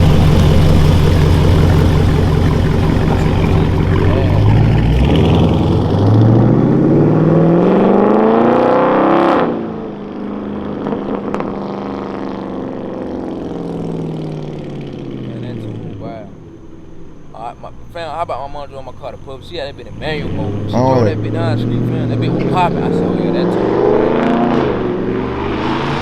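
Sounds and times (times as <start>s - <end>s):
exhaust pops: 0.0s - 6.3s
car engine accelerating hard: 0.0s - 16.3s, 18.1s - 26.0s.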